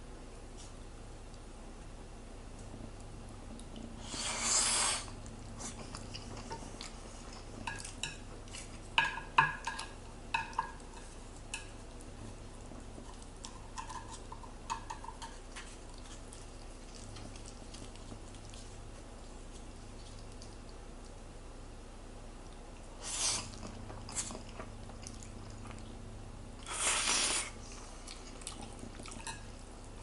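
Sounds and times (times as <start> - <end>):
scrape: 26.6 - 27.6.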